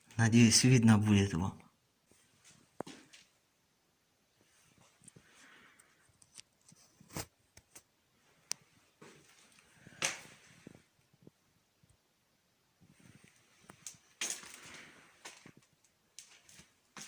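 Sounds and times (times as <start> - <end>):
crackling rustle: 12.8 - 17.0.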